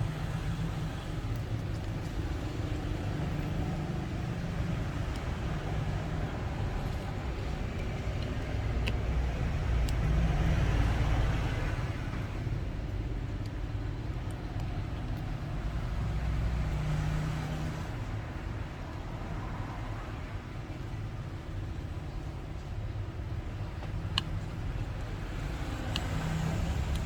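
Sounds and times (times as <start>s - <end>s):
low rumble of road traffic: 0.0s - 27.0s.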